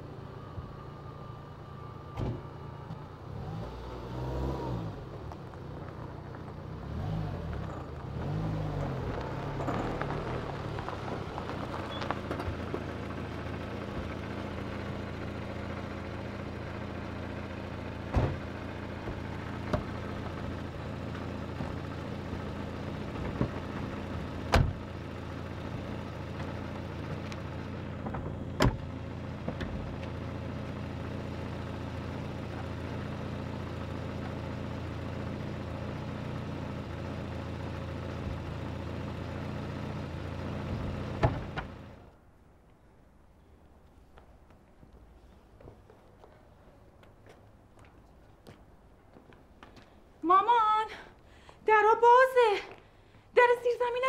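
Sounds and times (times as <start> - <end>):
car engine idling: 5.0 - 42.2.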